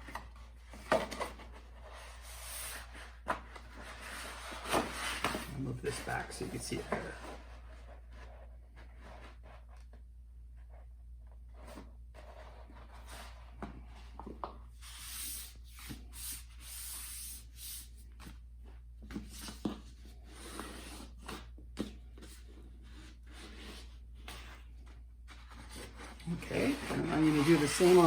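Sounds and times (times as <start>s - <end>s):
stiff paper rustling and scraping: 22.3s - 28.0s.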